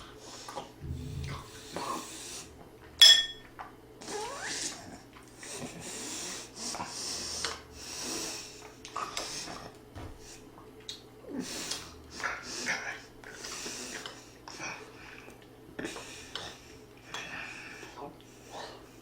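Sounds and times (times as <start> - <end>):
breathing: 0.2 - 2.6, 5.4 - 10.5, 11.4 - 19.0
utensil clinking against dish: 3.0 - 3.4.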